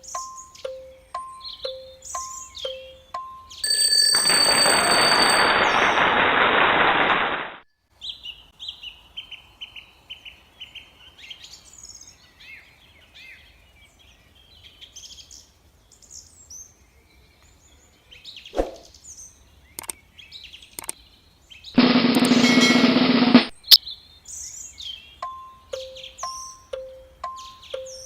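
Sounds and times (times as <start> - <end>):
outdoor background noise: 0.0 - 28.0
birds chirping and singing: 23.6 - 28.0.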